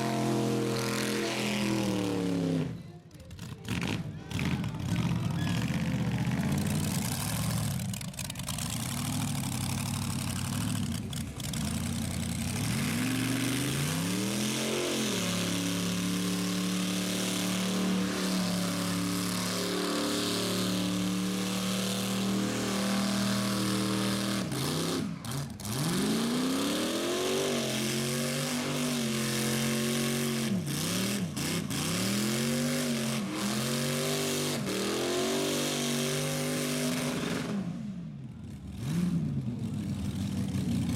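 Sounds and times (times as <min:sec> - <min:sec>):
car engine revving hard: 0:00.0 - 0:02.8, 0:11.4 - 0:37.8.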